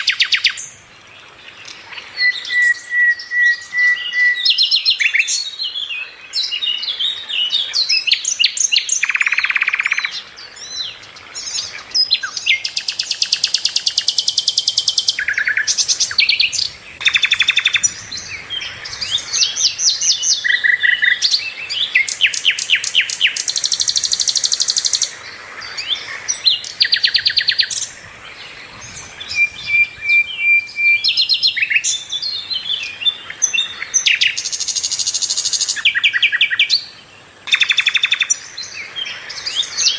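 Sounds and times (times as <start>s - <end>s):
flycatcher singing chirps and trills: 0.0s - 39.9s.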